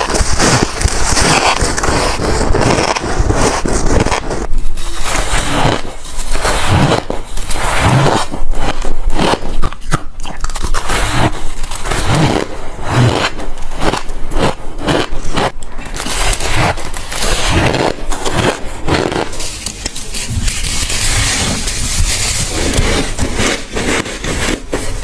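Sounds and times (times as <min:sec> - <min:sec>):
chewing ice crunches: 0:08.5 - 0:17.4.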